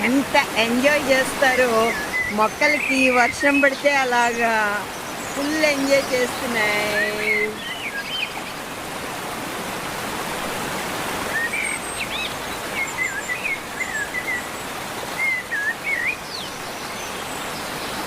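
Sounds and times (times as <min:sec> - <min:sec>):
rain falling: 0:00.0 - 0:18.0
bird chirping: 0:00.6 - 0:08.6.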